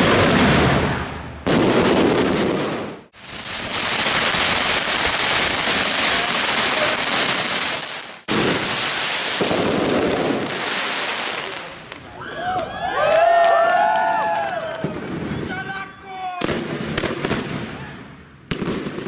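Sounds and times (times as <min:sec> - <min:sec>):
fireworks crackling: 0:00.0 - 0:12.1, 0:16.4 - 0:19.0.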